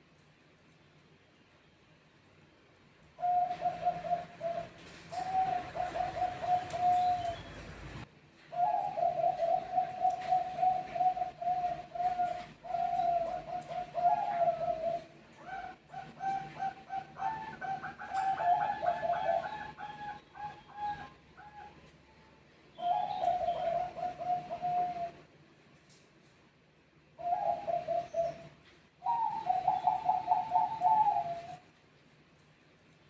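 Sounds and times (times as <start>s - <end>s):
doves cooing: 3.2s - 21.9s, 22.8s - 25.3s, 27.2s - 31.8s.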